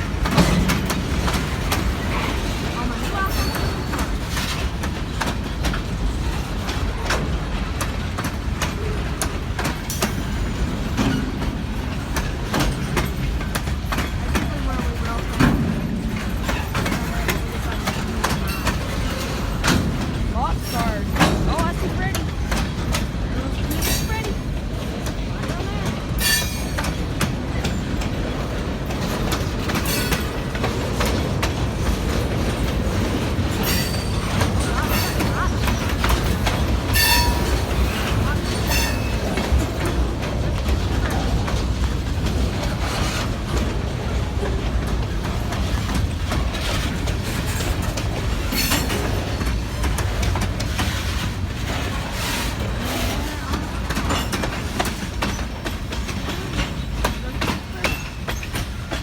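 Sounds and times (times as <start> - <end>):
freight train rumbling: 0.0 - 59.0
wheels clacking over rail joints: 0.0 - 59.0
high wheel squeals: 36.9 - 39.3.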